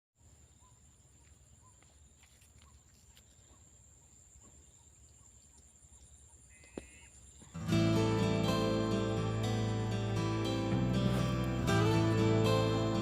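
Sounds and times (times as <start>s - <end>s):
soft chirps and ticks: 0.6s - 7.6s.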